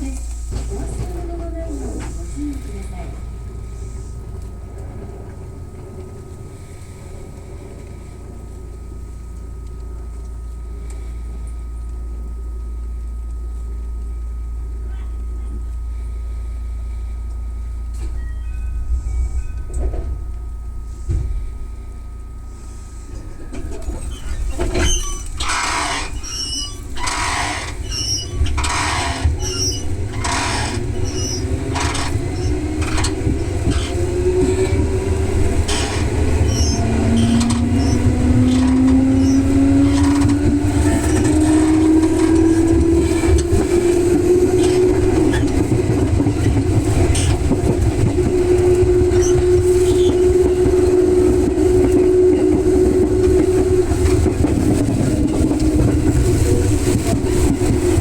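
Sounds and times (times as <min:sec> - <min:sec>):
traction motor whine: 0:00.0 - 0:58.0
train wheels clacking over rail joints: 0:23.4 - 0:58.0.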